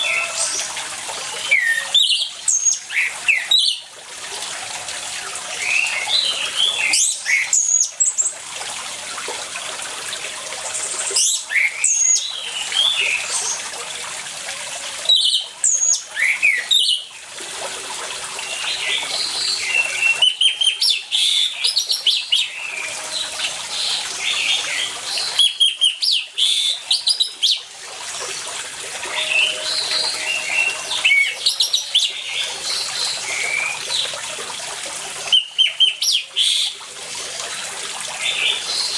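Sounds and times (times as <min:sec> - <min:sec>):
running water: 0:00.0 - 0:38.9
thrush singing: 0:28.9 - 0:33.7.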